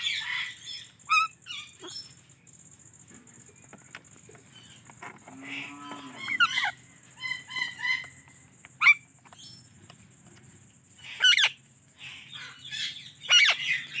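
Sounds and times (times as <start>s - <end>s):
parakeet squawking: 11.0s - 11.6s, 12.3s - 13.9s.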